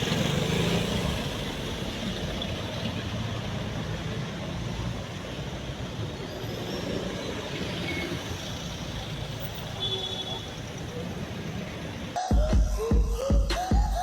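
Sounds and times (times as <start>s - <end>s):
vehicle engines rumbling: 0.0s - 12.2s.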